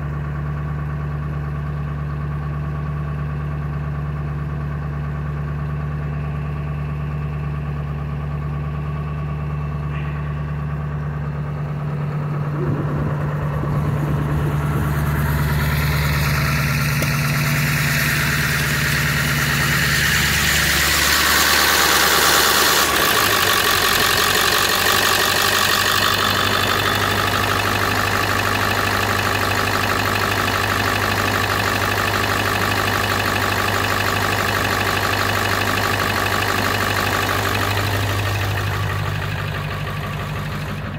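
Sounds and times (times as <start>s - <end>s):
diesel engine idling: 0.0s - 40.9s
hissing rush: 12.0s - 22.6s.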